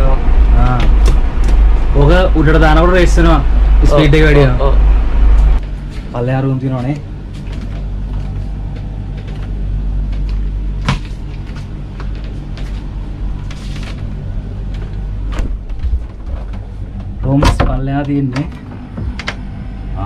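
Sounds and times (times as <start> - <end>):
motor boat engine droning: 0.0 - 5.7.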